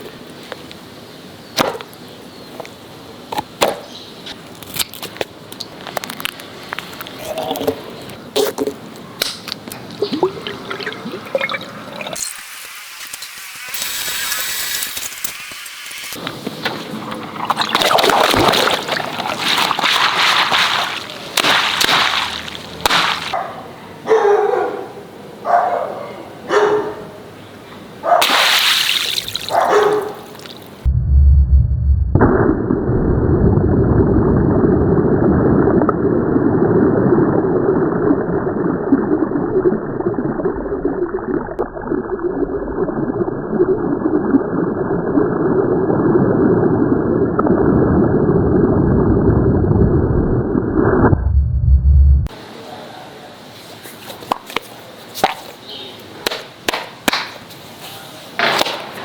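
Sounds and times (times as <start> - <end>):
water splashing and gushing: 9.8 - 23.4, 28.2 - 30.9
muffled rumbling noise: 30.8 - 52.3.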